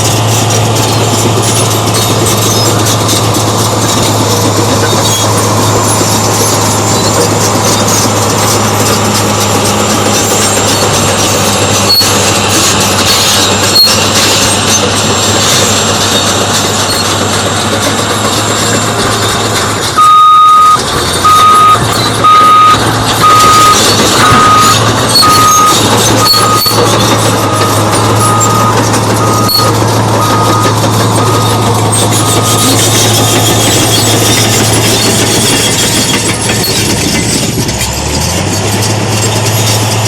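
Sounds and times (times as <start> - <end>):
bulldozer diesel engine running: 0.0 - 40.0
backup alarm beeping: 20.0 - 26.8, 27.5 - 32.8.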